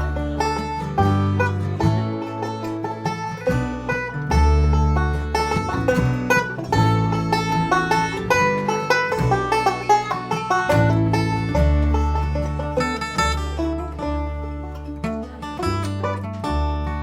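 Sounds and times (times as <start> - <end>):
acoustic guitar: 0.0 - 17.0
banjo picking: 0.0 - 17.0
upright bass notes: 0.0 - 17.0.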